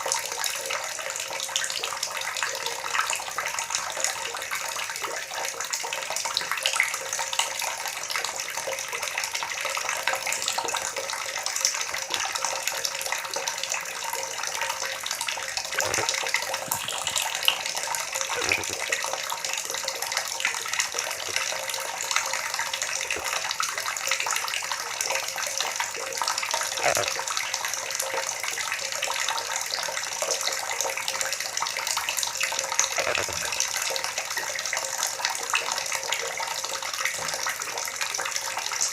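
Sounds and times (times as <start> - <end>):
water gurgling and splashing: 8.8 - 28.2, 31.1 - 34.4
deep bubbling gulps: 15.6 - 19.2, 20.9 - 21.8, 26.7 - 27.2, 32.8 - 33.7.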